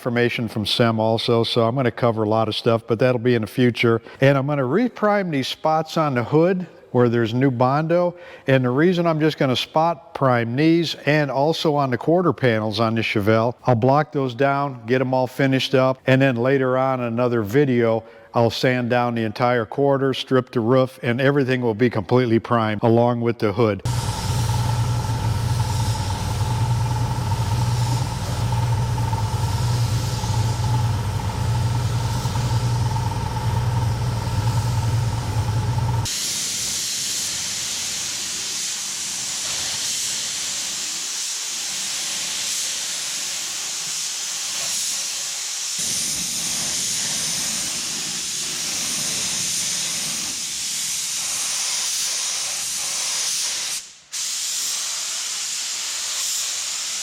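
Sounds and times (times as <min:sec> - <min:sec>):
spray gun hissing: 0:23.8 - 0:57.0
low hum: 0:23.9 - 0:36.1.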